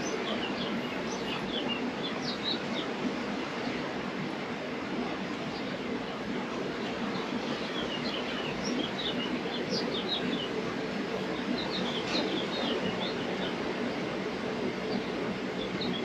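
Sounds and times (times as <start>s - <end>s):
small birds chirping: 0.0s - 2.9s, 6.8s - 14.2s, 14.8s - 16.0s
low background hum: 0.0s - 16.0s.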